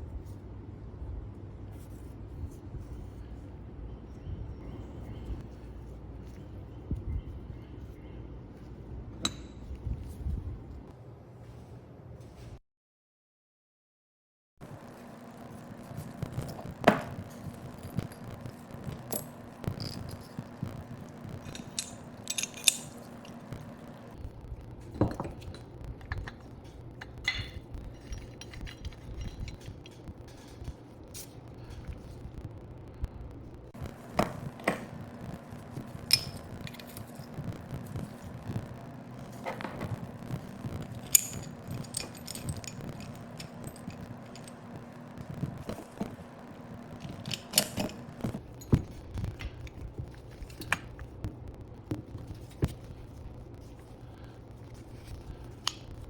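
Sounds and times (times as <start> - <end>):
small metal parts clinking: 14.6 - 24.2, 24.9 - 32.2, 33.8 - 51.1
steady low hum: 14.6 - 56.0.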